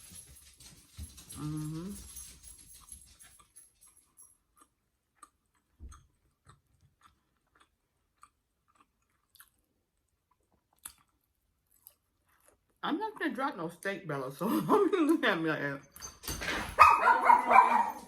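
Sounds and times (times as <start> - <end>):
person chewing: 4.4 - 12.8.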